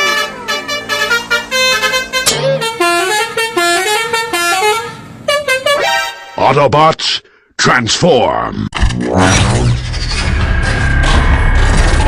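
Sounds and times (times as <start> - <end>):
multi-note bus horn: 0.0 - 6.4.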